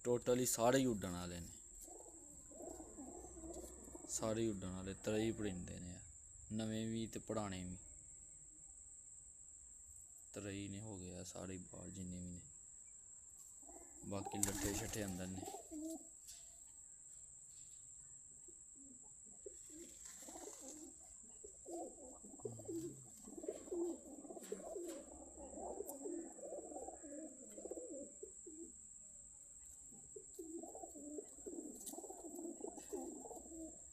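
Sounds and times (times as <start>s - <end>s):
pigeons cooing: 1.8s - 4.6s, 13.6s - 16.1s, 18.8s - 28.8s, 29.9s - 33.9s.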